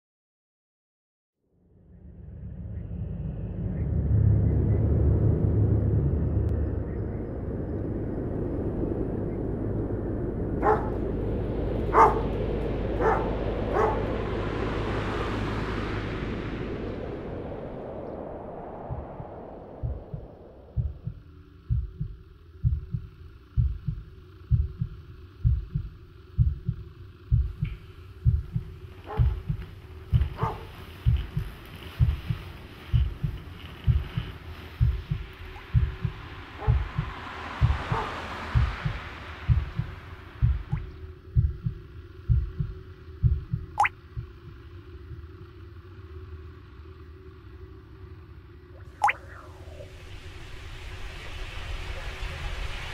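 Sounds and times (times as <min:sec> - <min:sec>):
faint steady hum: 0:01.8 - 0:52.9
heartbeat double thumps: 0:09.0 - 0:45.3
water drip plop: 0:43.7 - 0:44.0, 0:48.9 - 0:49.4.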